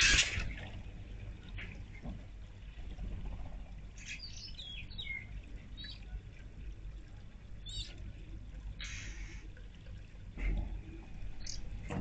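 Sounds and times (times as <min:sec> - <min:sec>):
fountain trickling: 0:03.7 - 0:11.9
bird chirping: 0:04.0 - 0:06.0, 0:07.6 - 0:08.0, 0:11.4 - 0:11.7.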